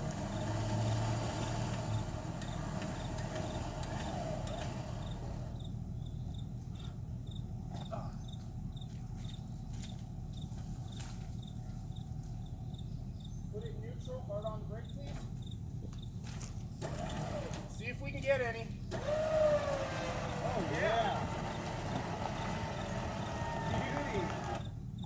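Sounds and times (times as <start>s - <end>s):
winch running: 0.0s - 5.7s, 16.6s - 24.9s
crickets chirping: 0.0s - 25.0s.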